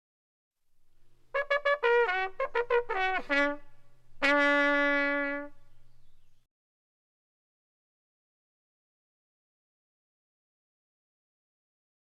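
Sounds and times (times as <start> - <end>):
brass musical phrase: 1.2 - 6.4.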